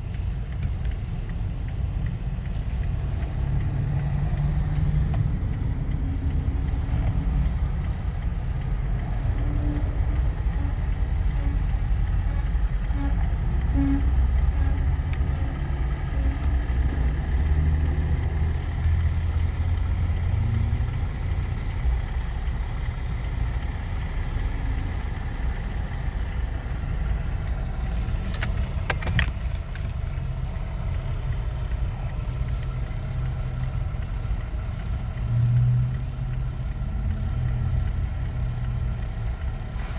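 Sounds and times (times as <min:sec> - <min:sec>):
vehicle engine rumbling: 0:00.0 - 0:39.9
rattle of clicks: 0:27.0 - 0:39.9.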